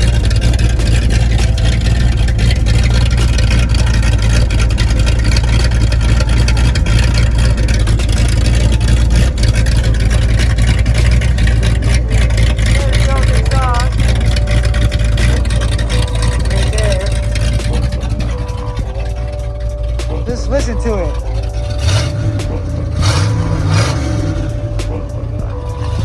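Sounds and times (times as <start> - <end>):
loud truck engine running: 0.0 - 26.0.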